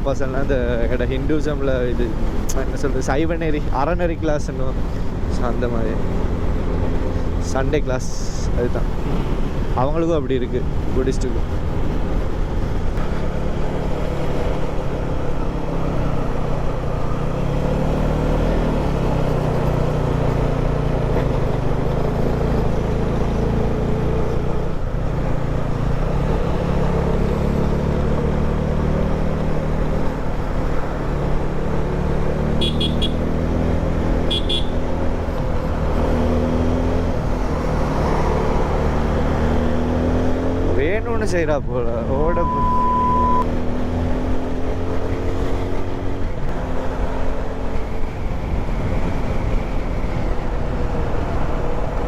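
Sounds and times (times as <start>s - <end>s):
motorcycle engine running: 28.9s - 36.0s
short high beeps: 42.2s - 43.5s.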